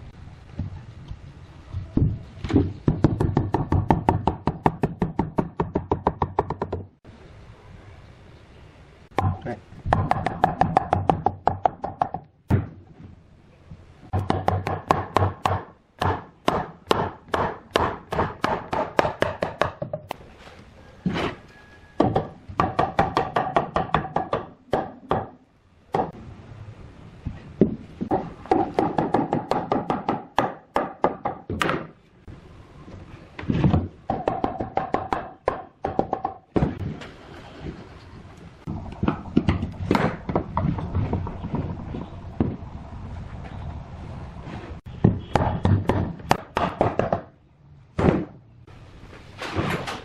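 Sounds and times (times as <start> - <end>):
rapid hammering on wood: 2.8 - 6.9, 9.9 - 12.2, 14.1 - 20.0, 22.0 - 26.2, 27.6 - 31.9, 34.1 - 36.8, 45.0 - 47.3.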